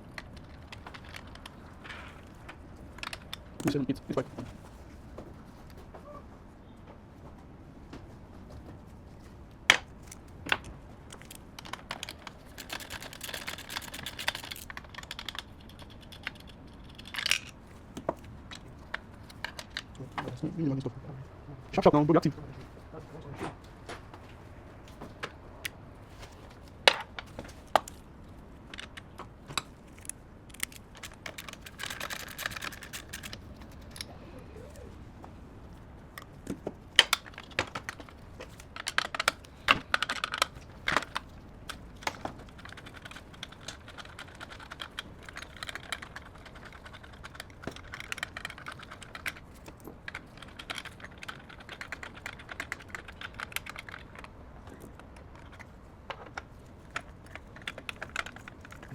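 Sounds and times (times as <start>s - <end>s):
typing on keyboard: 11.2s - 17.4s, 30.6s - 34.1s, 37.0s - 55.7s.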